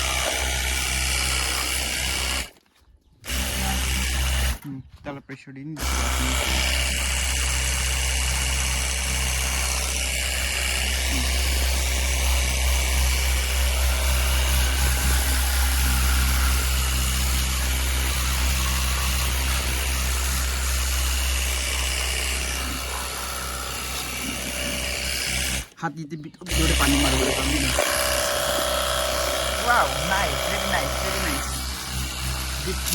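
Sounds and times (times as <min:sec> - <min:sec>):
pressure washer pump humming: 0:00.0 - 0:02.6, 0:03.2 - 0:04.7, 0:05.8 - 0:25.8, 0:26.5 - 0:32.9
water jet spraying: 0:26.5 - 0:32.9.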